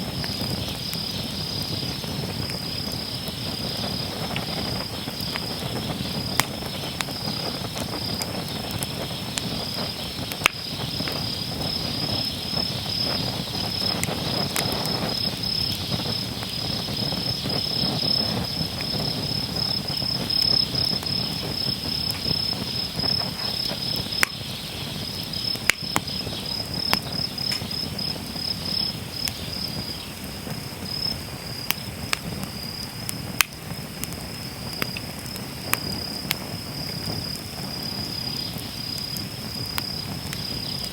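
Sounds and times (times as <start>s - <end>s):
campfire burning: 0.0s - 40.9s
fire popping and crackling: 0.0s - 40.9s
insects trilling: 0.0s - 40.9s.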